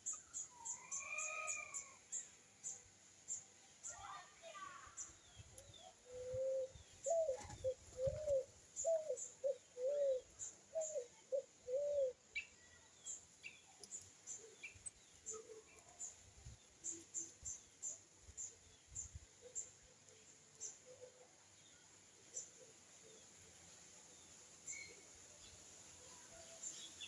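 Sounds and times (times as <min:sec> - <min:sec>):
small birds chirping: 0:00.0 - 0:27.0
dove cooing: 0:06.0 - 0:12.2.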